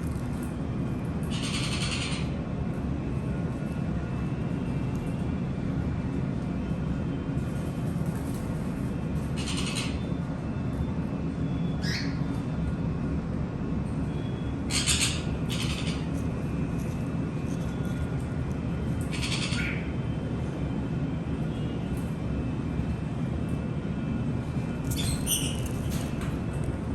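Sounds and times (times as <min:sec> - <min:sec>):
conures squawking: 0:01.3 - 0:02.4, 0:09.4 - 0:10.0, 0:14.7 - 0:16.2, 0:19.1 - 0:19.9, 0:24.9 - 0:25.8.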